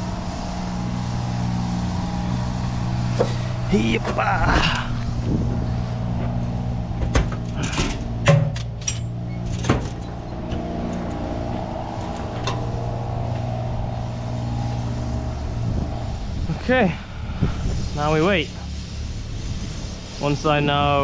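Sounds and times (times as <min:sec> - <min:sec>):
engine idling: 0:00.0 - 0:21.0
sharp knocks and clicks: 0:07.0 - 0:11.3.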